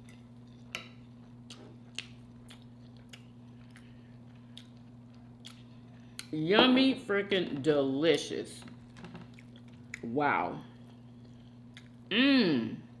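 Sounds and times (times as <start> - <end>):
quiet chewing: 0.0 - 6.4, 8.6 - 10.1, 10.8 - 12.0
steady low hum: 0.0 - 13.0.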